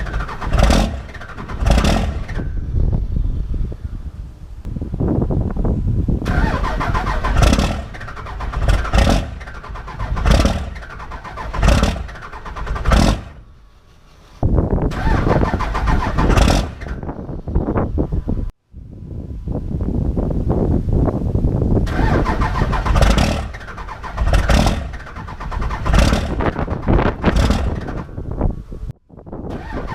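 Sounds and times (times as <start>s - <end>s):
diesel engine revving: 0.0s - 3.6s, 6.2s - 17.4s, 21.8s - 28.9s, 29.5s - 29.9s.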